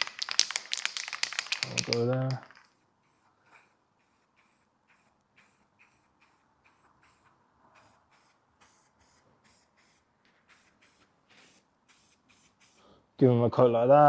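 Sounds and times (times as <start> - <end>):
aerosol spray can hissing: 2.6 - 12.9.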